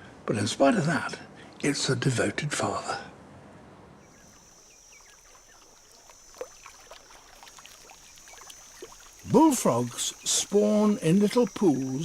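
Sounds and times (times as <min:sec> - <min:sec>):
water drips and splashes: 0:04.3 - 0:12.0.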